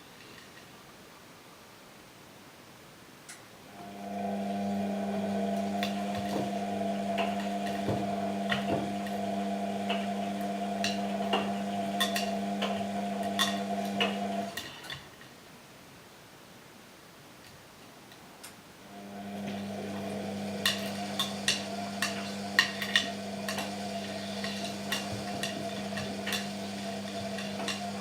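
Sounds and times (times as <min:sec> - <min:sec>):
washing machine motor humming: 0:03.7 - 0:14.6, 0:18.9 - 0:28.0.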